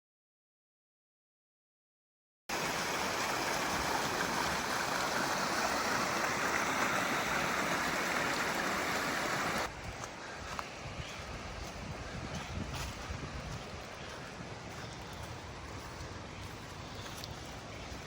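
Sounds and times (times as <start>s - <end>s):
water rushing over rocks: 2.5s - 9.7s.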